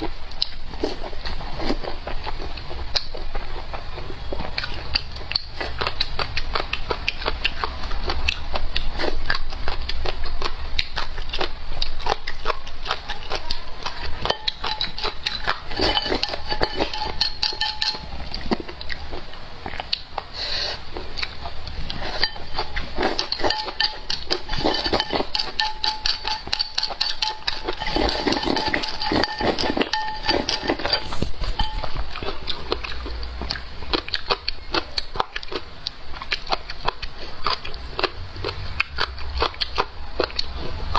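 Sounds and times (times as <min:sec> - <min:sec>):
chewing crunchy food: 0:00.0 - 0:40.9
cutlery clinking: 0:13.8 - 0:18.6, 0:21.9 - 0:33.0.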